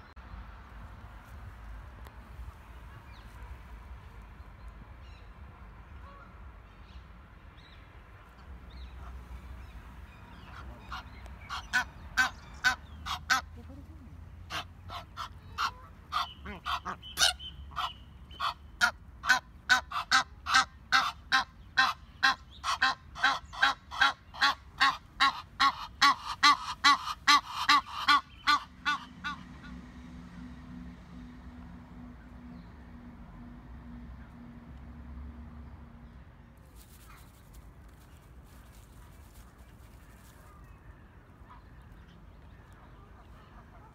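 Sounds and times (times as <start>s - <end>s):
geese honking: 10.4s - 13.6s, 14.5s - 29.5s.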